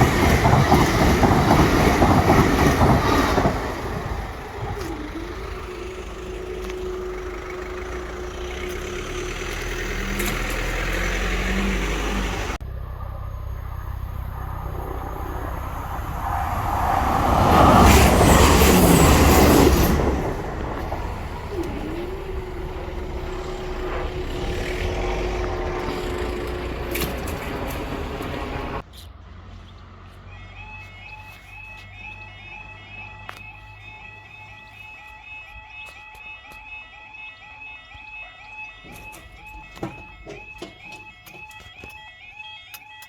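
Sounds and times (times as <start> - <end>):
vehicle passing loudly: 0.0 - 30.9
traffic hum: 0.0 - 42.9.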